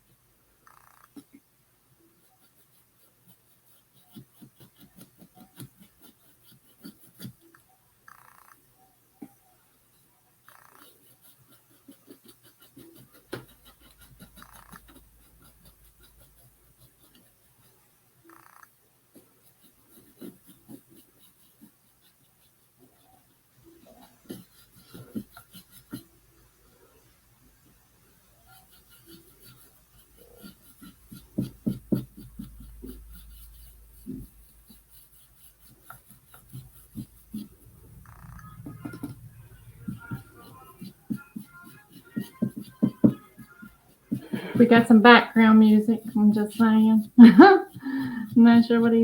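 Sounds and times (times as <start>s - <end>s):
paintbrush strokes on wood: 9.3s - 18.5s, 19.1s - 49.0s.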